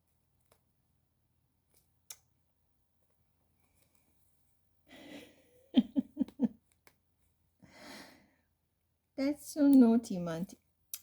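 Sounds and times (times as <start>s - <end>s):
person chuckling: 4.9s - 6.6s
person exhaling: 7.7s - 8.3s.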